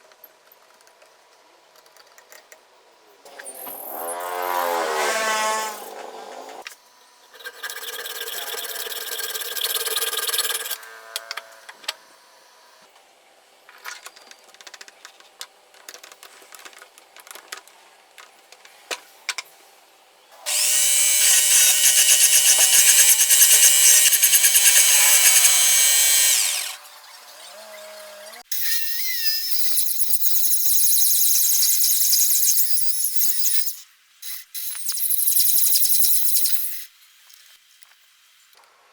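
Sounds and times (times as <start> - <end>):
electric drill running: 20.4 - 28.4.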